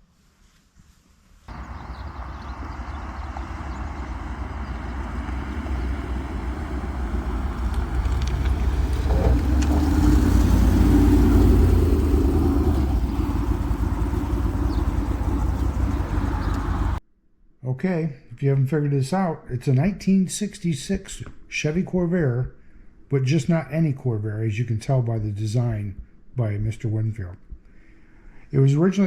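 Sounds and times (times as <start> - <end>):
car engine running: 1.5 - 17.0.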